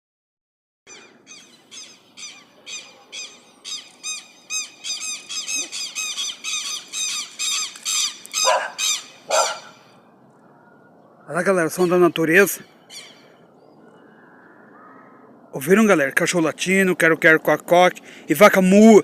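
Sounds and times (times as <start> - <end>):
bird yelping calls: 0.9 - 15.5.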